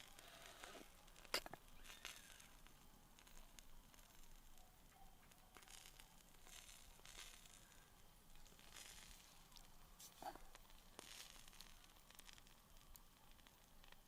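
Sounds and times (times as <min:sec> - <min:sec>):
faint soft rustling: 0:05.2 - 0:14.0.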